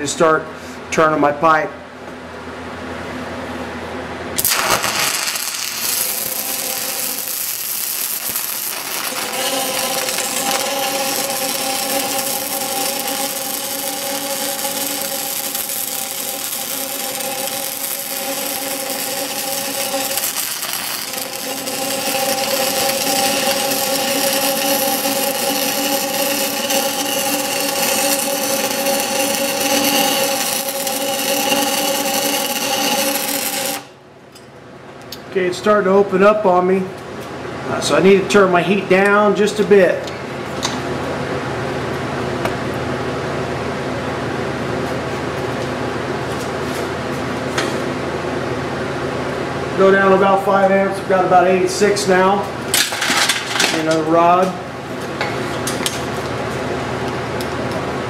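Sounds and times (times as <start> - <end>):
welding arc crackling and sizzling: 4.4 - 34.0, 49.8 - 54.6.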